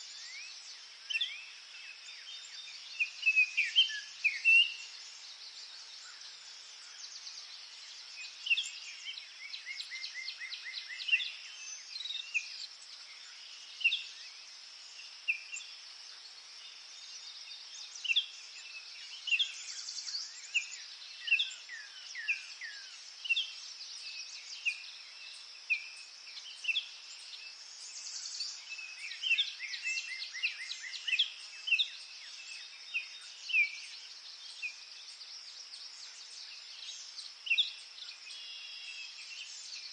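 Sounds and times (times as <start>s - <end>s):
small birds singing: 0.0s - 39.9s.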